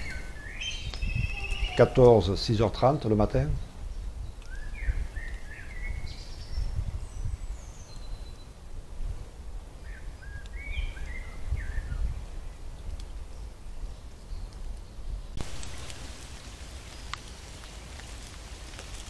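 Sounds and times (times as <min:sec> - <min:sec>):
songbird singing: 0:00.0 - 0:08.6, 0:09.8 - 0:19.0
low outdoor rumble: 0:15.4 - 0:19.0.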